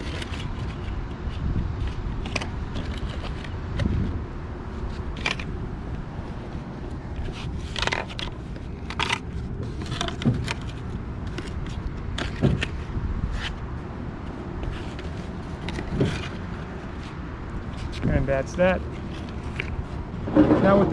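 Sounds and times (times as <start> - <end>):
steady low rumble: 0.0 - 20.9
scrapes and knocks: 18.9 - 20.9.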